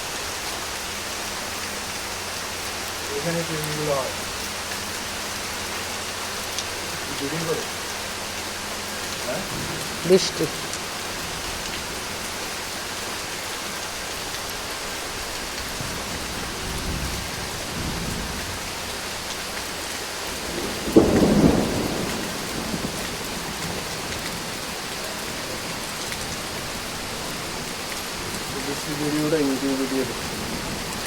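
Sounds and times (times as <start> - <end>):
steady rain falling: 0.0 - 31.0
low rumble of thunder: 8.9 - 12.3, 15.5 - 19.5, 20.2 - 29.2, 29.8 - 31.0.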